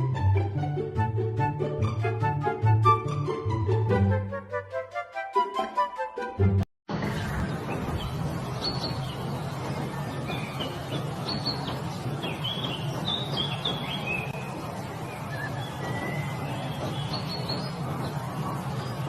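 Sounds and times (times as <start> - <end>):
steady background noise: 6.9 - 19.0
small birds chirping: 7.0 - 19.0.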